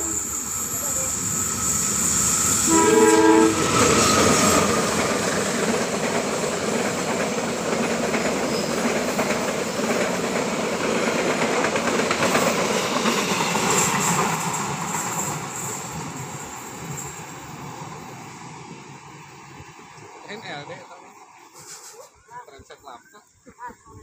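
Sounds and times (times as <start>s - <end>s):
train horn: 0.0s - 0.3s, 2.6s - 4.6s
train passing: 0.0s - 23.2s.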